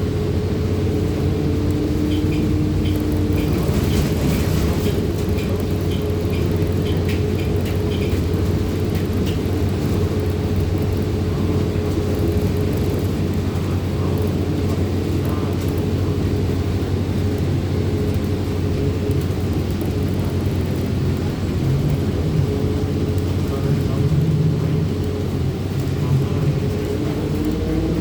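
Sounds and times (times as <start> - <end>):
bus engine drone and whine: 0.0 - 28.0.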